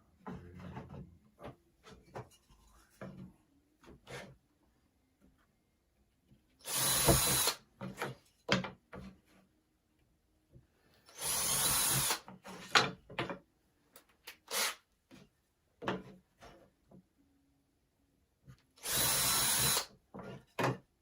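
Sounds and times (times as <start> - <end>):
power drill driving screws: 6.6 - 7.6, 11.1 - 12.2, 14.5 - 14.8, 18.8 - 19.9
knocks and clicks of handled parts: 7.8 - 9.2, 12.2 - 14.4.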